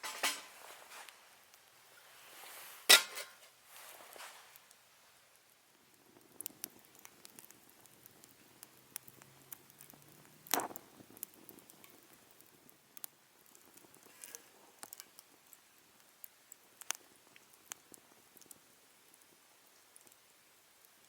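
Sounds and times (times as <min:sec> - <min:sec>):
wood fire crackling: 0:00.0 - 0:21.0
loud fire crack: 0:05.7 - 0:21.0.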